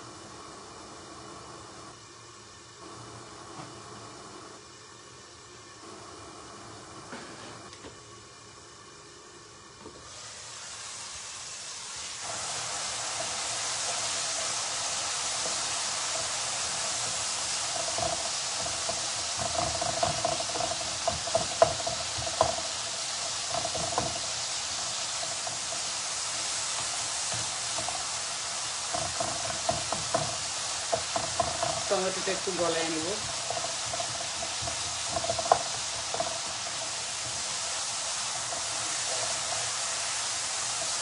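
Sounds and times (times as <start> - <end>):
spices sizzling in hot oil: 0.0 - 41.0
spatula scraping and tapping pan: 13.2 - 39.8.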